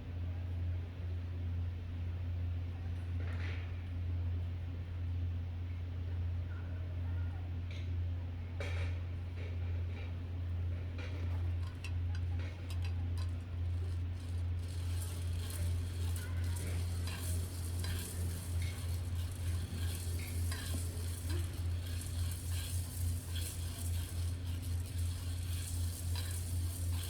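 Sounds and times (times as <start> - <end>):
burner humming: 9.3 - 27.0
coffee beans rattling and crackling: 11.0 - 27.0.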